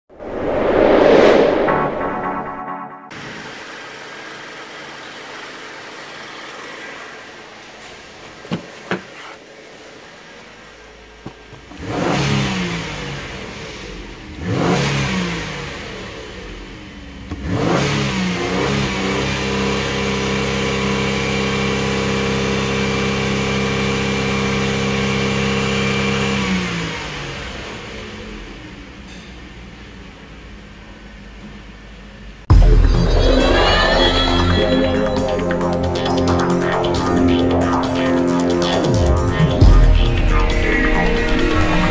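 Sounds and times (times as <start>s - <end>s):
car engine revving: 11.6s - 28.6s.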